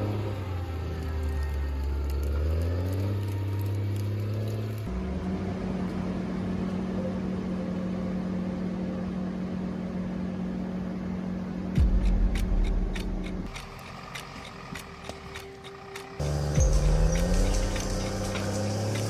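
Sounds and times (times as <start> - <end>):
engine steady drone: 0.0 - 19.0
machine engine rising in pitch: 0.0 - 19.0.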